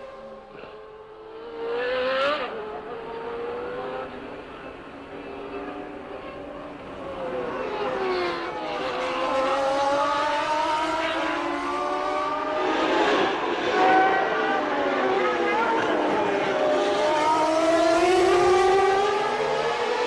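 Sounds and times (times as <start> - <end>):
racing car engines at speed: 0.0 - 20.0.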